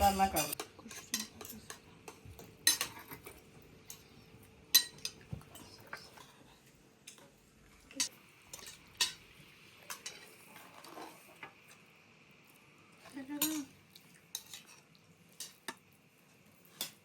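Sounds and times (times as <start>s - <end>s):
cutlery clinking on plates: 0.0s - 4.1s, 4.7s - 6.3s.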